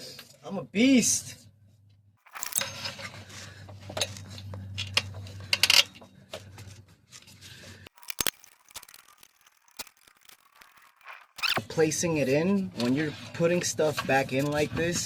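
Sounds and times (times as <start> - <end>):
sharp clicks: 2.2 - 2.7, 7.9 - 11.6
metal tools clinking and scraping: 2.2 - 3.0, 7.9 - 11.6.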